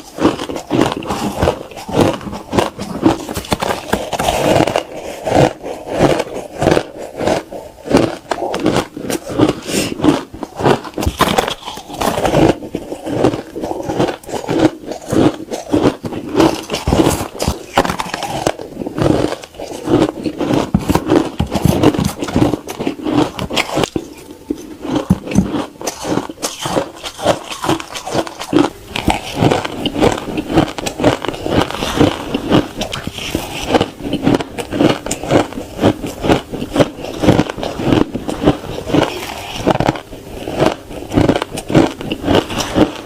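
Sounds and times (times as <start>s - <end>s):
ice being chewed: 0.0s - 43.0s.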